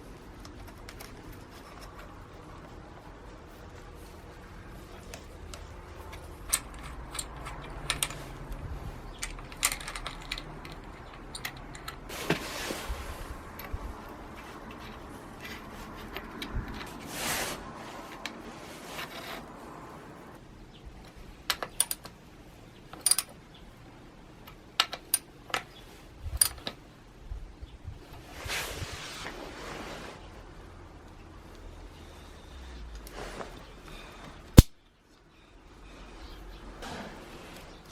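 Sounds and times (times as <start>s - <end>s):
metal parts clicking and clinking: 4.8s - 12.1s, 21.5s - 22.2s, 22.9s - 23.4s
rustling swishes: 12.0s - 20.3s, 28.1s - 30.5s.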